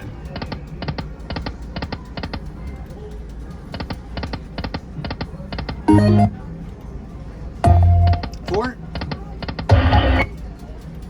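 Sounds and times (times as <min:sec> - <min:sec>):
casino background hum: 0:02.2 - 0:10.6
slot machine electronic ticks: 0:05.9 - 0:06.5, 0:07.6 - 0:08.7, 0:09.6 - 0:10.4.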